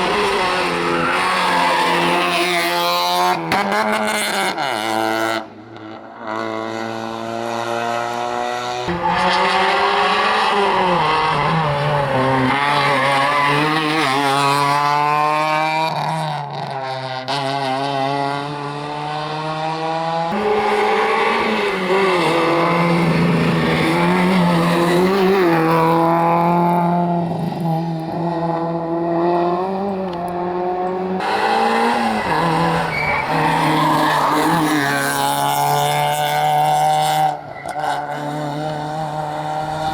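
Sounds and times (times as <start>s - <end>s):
rally car engines revving: 0.0s - 39.9s.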